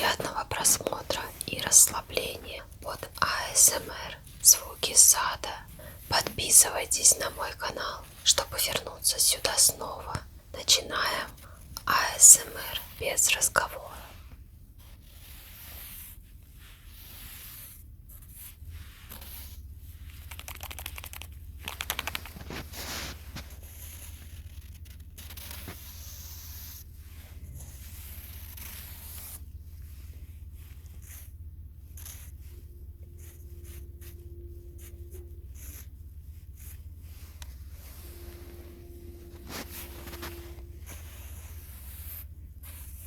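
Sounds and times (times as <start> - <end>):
steady low hum: 0.0 - 20.4, 21.0 - 43.0
hands rustling garden material: 21.7 - 23.7.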